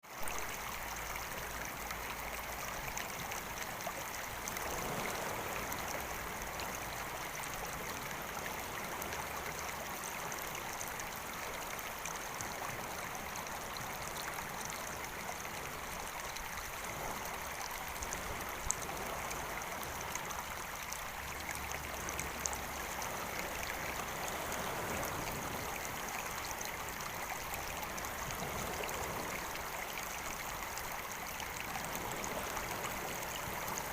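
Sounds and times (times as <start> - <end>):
small stream flowing: 0.0 - 33.9.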